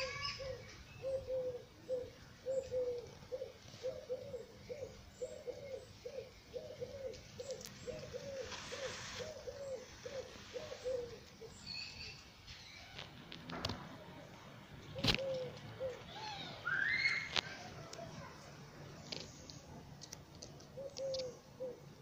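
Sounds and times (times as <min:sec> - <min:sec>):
bird cooing: 0:00.0 - 0:12.2, 0:14.9 - 0:17.7, 0:20.6 - 0:22.0
small bird chirping: 0:00.0 - 0:13.0.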